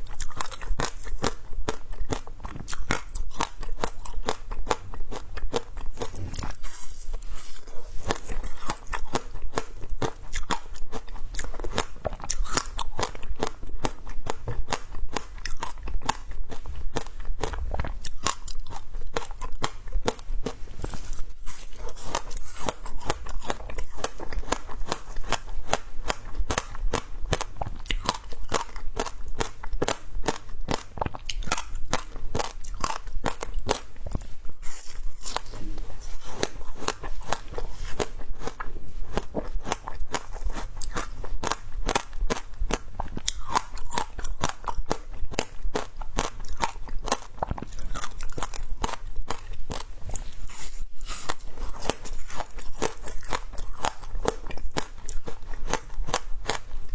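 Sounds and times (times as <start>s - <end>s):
shaved ice crunching when chewed: 0.0s - 56.9s.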